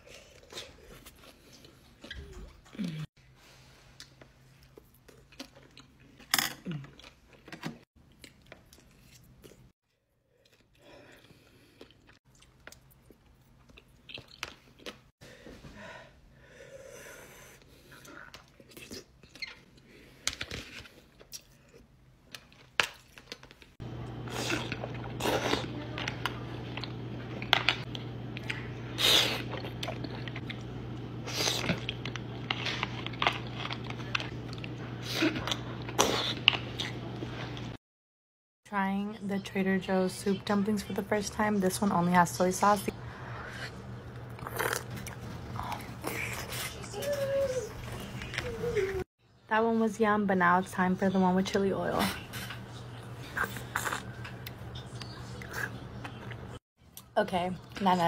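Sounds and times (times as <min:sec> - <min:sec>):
chewing and biting: 0:10.4 - 0:15.1, 0:17.9 - 0:37.2, 0:52.2 - 0:56.6.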